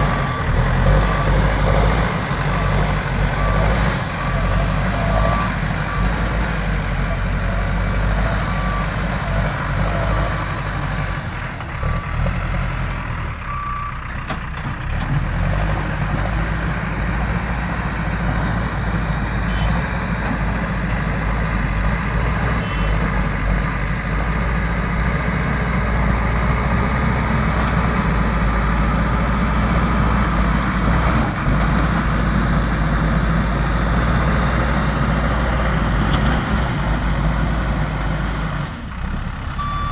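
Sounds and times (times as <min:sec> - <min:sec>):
reversing alarm beeping: 0:00.0 - 0:06.7, 0:22.1 - 0:23.6, 0:39.6 - 0:39.9
diesel engine rumbling: 0:00.0 - 0:39.9.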